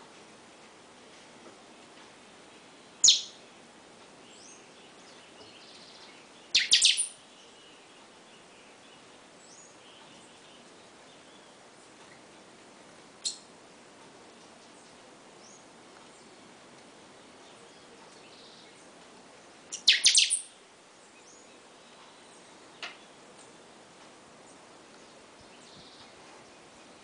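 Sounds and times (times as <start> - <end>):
bird giving sharp high calls: 3.0 - 3.4, 6.5 - 7.2, 19.7 - 20.5
faint bird chirps: 3.0 - 3.4, 4.3 - 12.3, 13.2 - 13.5, 19.7 - 23.7.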